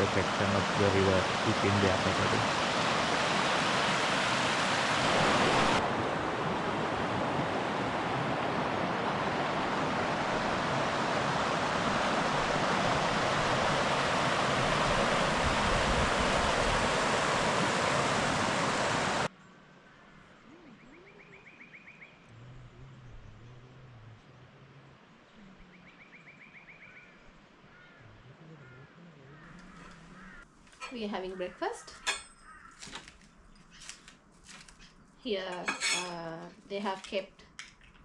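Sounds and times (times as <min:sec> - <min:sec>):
river water rushing: 0:00.0 - 0:19.3
faint bird chirps: 0:19.4 - 0:30.4.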